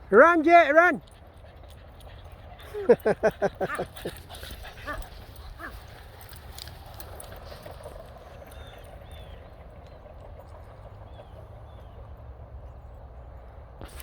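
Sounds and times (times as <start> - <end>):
dog barking: 3.6 - 3.9, 4.8 - 5.8.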